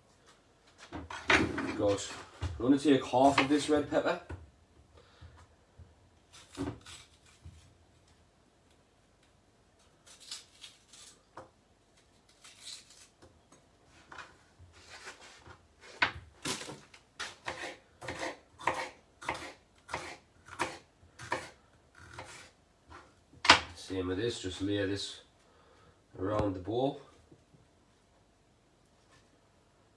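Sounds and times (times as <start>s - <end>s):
knife chopping on board: 16.5s - 22.5s.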